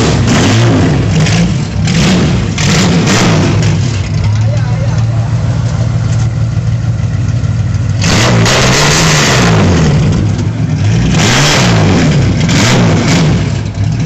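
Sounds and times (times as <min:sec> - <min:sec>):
car engine idling and revving: 0:00.0 - 0:14.0.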